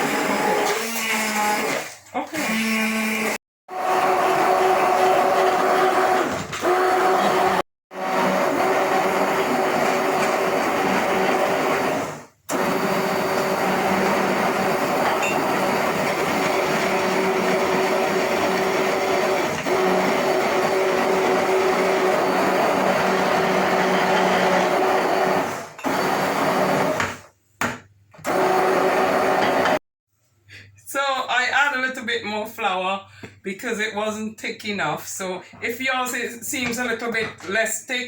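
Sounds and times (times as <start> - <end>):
blender running: 0.0 - 27.3, 28.2 - 29.8.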